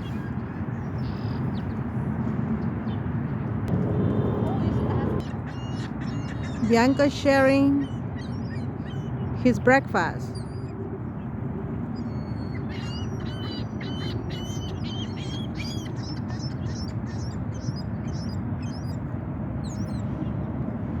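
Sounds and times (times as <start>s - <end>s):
small birds chirping: 5.2s - 11.3s, 12.0s - 19.0s.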